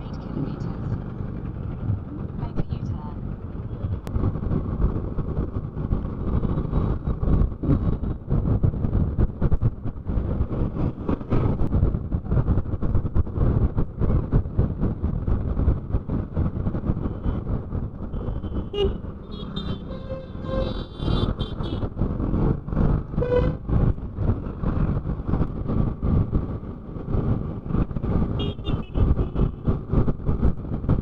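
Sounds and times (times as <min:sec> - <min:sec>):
wind buffeting microphone: 0:00.0 - 0:31.0
vehicle horns honking: 0:18.2 - 0:21.9, 0:23.2 - 0:23.6, 0:28.4 - 0:29.5.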